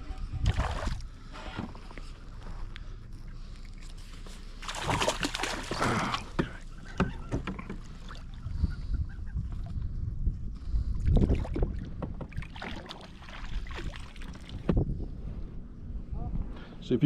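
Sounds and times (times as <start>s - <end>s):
light knocks and clunks: 6.3s - 8.0s, 11.6s - 12.5s, 14.6s - 14.9s.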